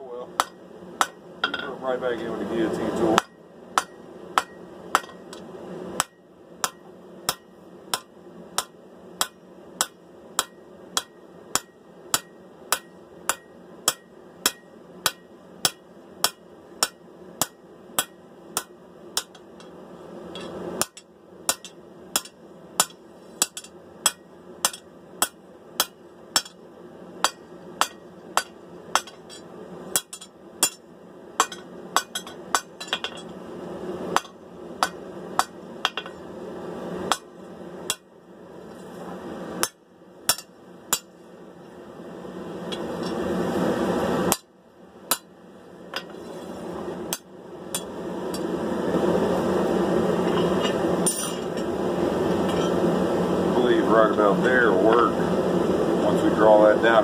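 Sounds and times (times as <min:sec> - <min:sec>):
hammer striking hot steel: 0:00.3 - 0:33.4, 0:34.1 - 0:36.3, 0:37.0 - 0:38.1, 0:39.6 - 0:41.3, 0:42.6 - 0:43.3, 0:44.2 - 0:44.5, 0:45.1 - 0:48.6, 0:50.2 - 0:52.8.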